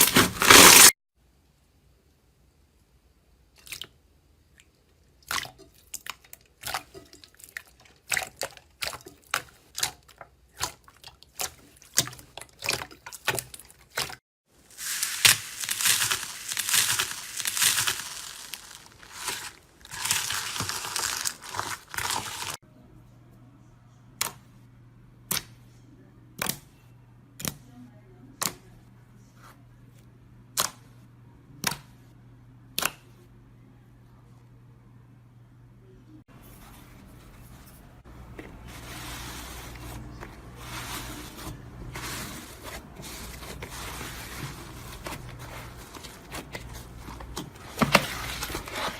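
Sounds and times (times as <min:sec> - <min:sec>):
loud crackling crunch: 0:00.0 - 0:01.0, 0:14.7 - 0:22.6.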